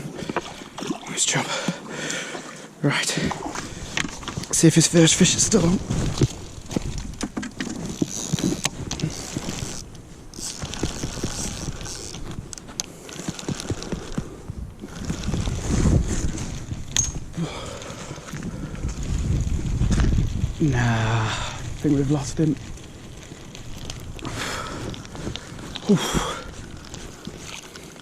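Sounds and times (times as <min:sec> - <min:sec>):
wind buffeting microphone: 0:03.2 - 0:27.7
handling knocks and rustles: 0:03.5 - 0:17.4.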